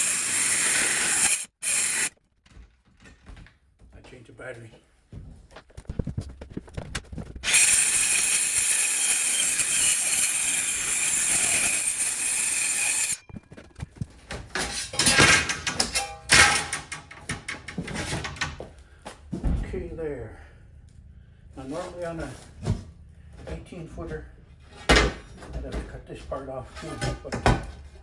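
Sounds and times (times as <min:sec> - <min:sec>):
power saw cutting metal: 0:00.0 - 0:02.1, 0:07.4 - 0:13.2
metal clunks and knocks: 0:13.6 - 0:19.8, 0:24.7 - 0:26.0, 0:26.8 - 0:27.9.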